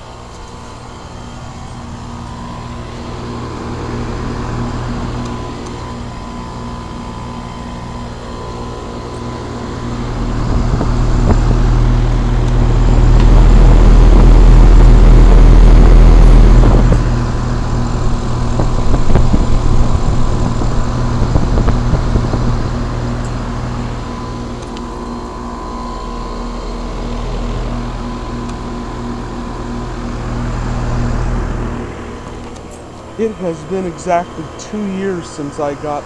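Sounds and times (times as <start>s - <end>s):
heat pump humming: 0.0s - 36.0s
wind buffeting microphone: 17.9s - 23.0s.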